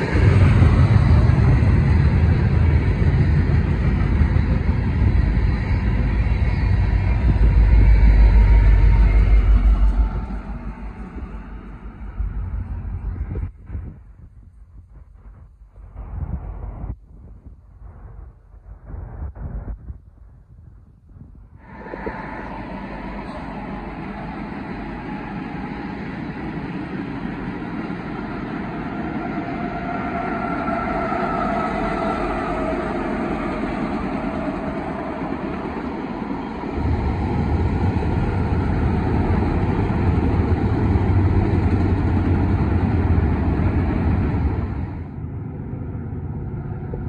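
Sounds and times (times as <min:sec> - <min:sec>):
freight cars rolling on rails: 0:00.0 - 0:16.8, 0:21.6 - 0:47.0
diesel locomotives passing: 0:00.0 - 0:16.9, 0:21.6 - 0:47.0
deep loud rumble: 0:00.0 - 0:26.6.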